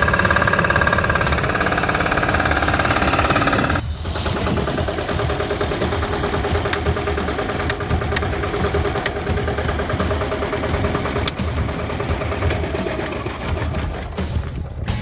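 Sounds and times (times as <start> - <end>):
sharp clicks: 0.0 - 3.8
farm machine engine running: 0.0 - 14.3.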